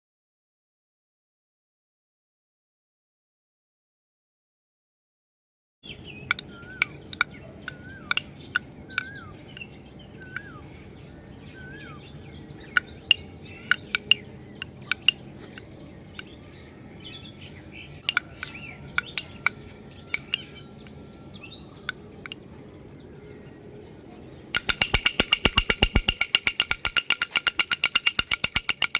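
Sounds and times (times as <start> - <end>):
birds chirping: 5.8 - 28.9
baby rattle jingling: 24.6 - 28.9.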